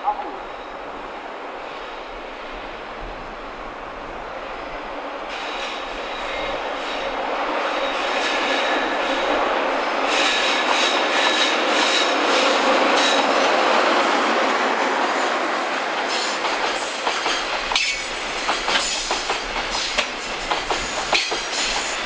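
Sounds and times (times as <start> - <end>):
freight train rolling past: 0.0 - 22.0
wheel clacks over rail joints: 16.1 - 22.0.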